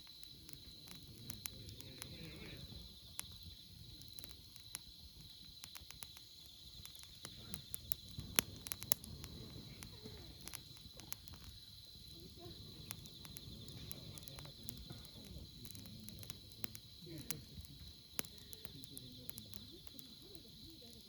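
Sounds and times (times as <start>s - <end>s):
campfire crackling and popping: 0.0s - 21.0s
insect trill: 0.0s - 21.0s.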